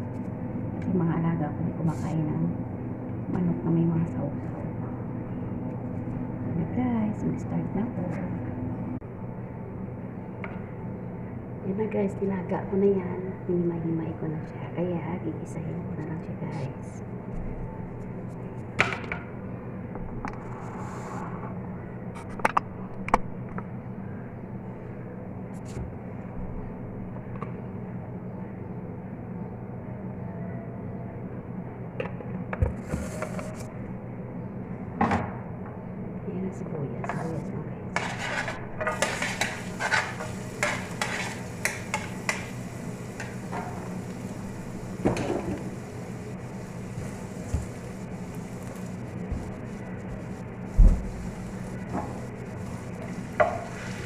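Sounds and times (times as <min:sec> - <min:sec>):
steady low hum: 0:00.0 - 0:54.0
spatula scraping a pan: 0:38.0 - 0:42.5
onions sizzling in a frying pan: 0:38.0 - 0:49.6, 0:50.6 - 0:54.0.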